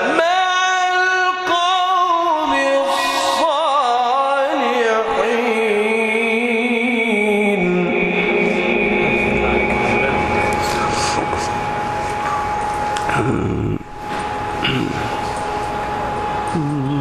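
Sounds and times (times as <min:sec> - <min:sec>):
man reciting melodically: 0:00.0 - 0:11.3.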